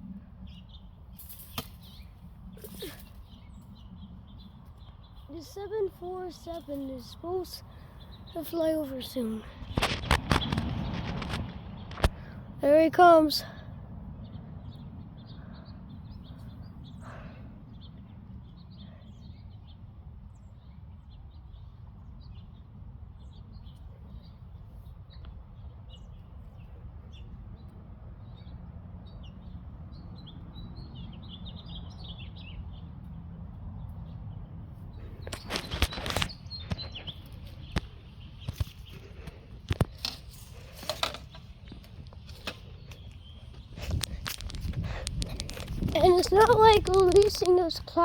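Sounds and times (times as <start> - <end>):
small birds chirping: 0.0 - 48.0
sharp bumps and gusts: 9.3 - 12.4, 34.9 - 48.0.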